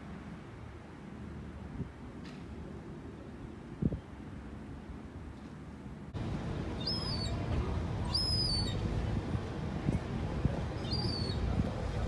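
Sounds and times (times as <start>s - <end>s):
steady low rumble: 6.0s - 12.0s
high whistled bird calls: 6.8s - 7.4s, 8.1s - 8.8s, 10.8s - 11.4s.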